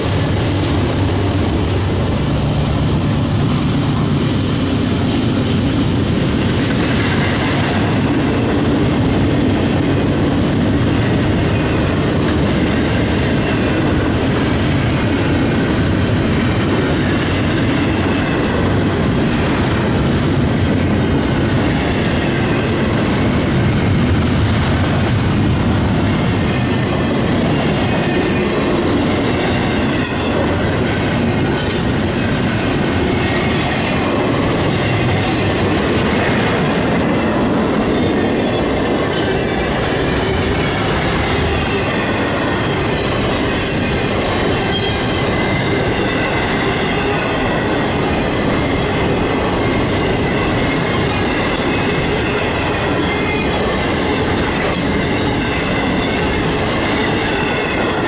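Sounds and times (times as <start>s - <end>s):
steel wheels rolling on rail: 0.0s - 58.0s.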